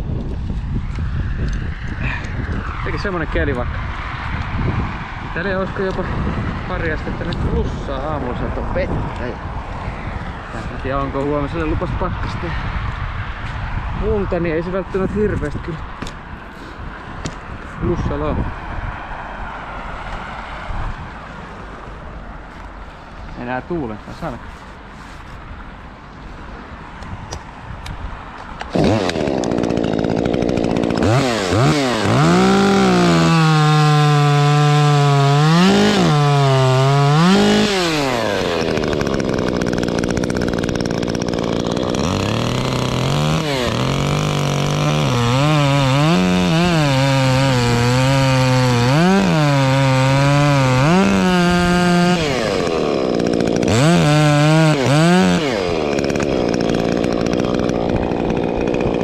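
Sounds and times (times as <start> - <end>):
chainsaw cutting wood: 28.4 - 59.0.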